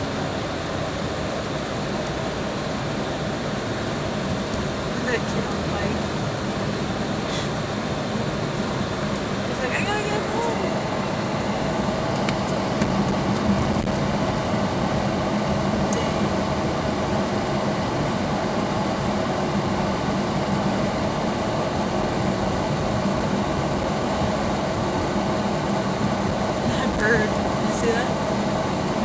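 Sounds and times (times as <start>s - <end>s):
car engine hum: 0.0s - 29.0s
ventilation fan rushing: 0.0s - 29.0s.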